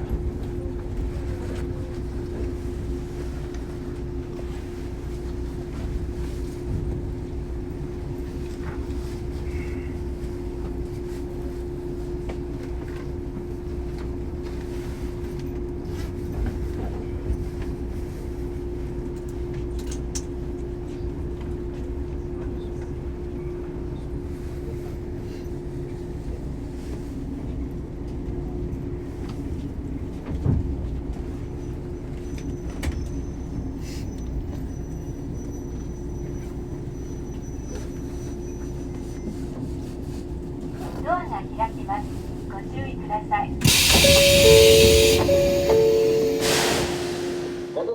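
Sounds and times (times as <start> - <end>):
electric train rumbling: 0.0 - 47.9
faint high whine: 43.7 - 47.9.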